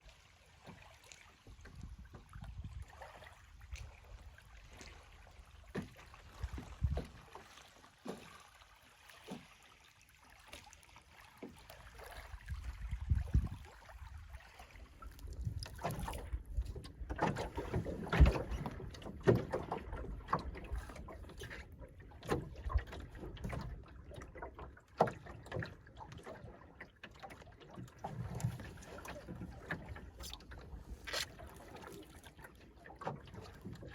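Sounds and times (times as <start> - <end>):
water sloshing along hull: 0.0 - 33.9
wind buffeting microphone: 6.4 - 7.2, 12.4 - 14.3.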